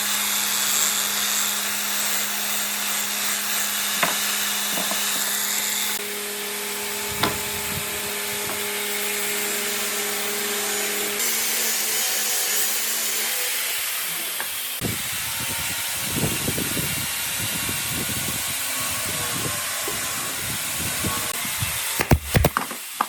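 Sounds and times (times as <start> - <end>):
rubbing and scraping on wood: 22.0 - 22.8.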